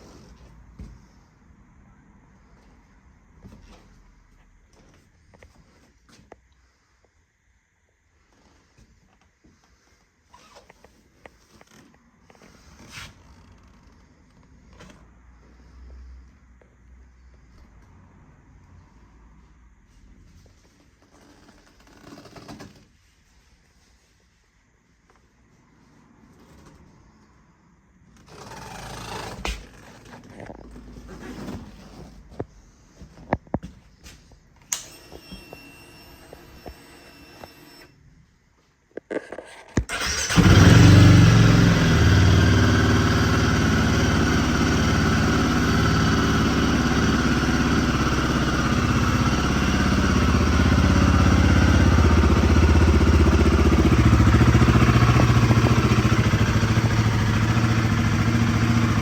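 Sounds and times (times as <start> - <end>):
motorcycle engine starting and idling: 39.8 - 59.0.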